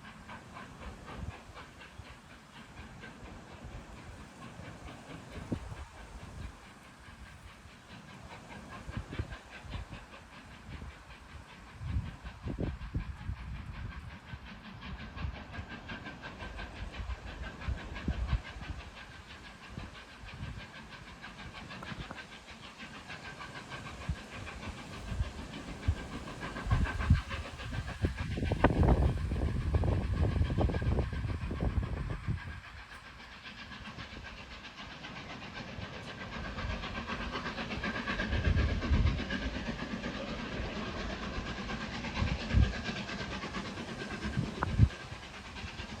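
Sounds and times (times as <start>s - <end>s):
strong wind buffeting microphone: 10.7s - 15.6s, 24.0s - 32.9s, 36.5s - 46.0s.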